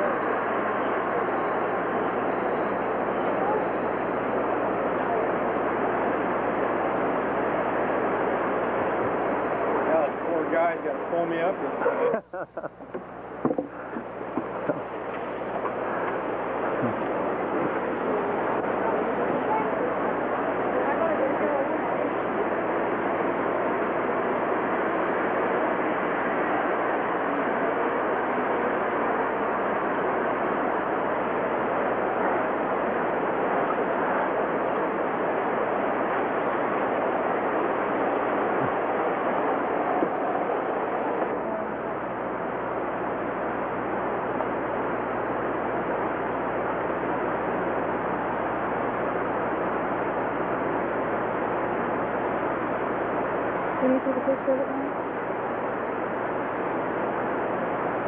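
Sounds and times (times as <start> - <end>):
water rushing: 13.3 - 53.8.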